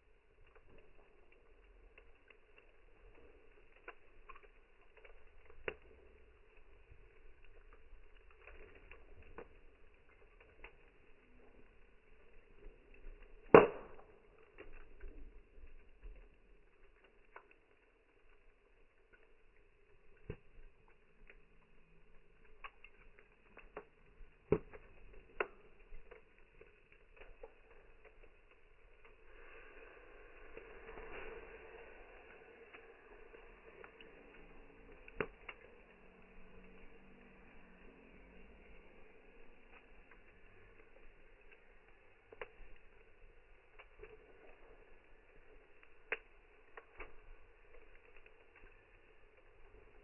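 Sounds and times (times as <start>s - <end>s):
campfire crackling: 0.0s - 50.0s
faint hiss: 27.4s - 50.0s.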